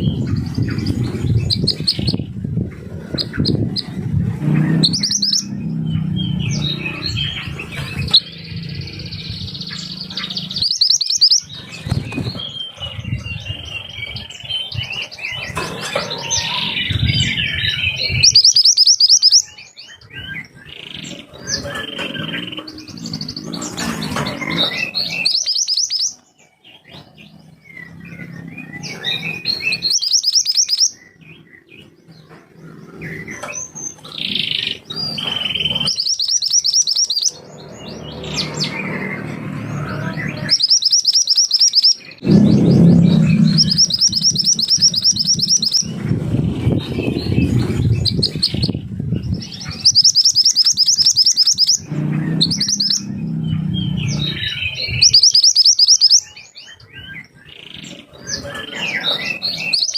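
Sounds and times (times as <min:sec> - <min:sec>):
songbird singing fast trills: 0:00.0 - 0:59.9
low background rumble: 0:42.2 - 0:49.8, 0:51.8 - 0:55.2.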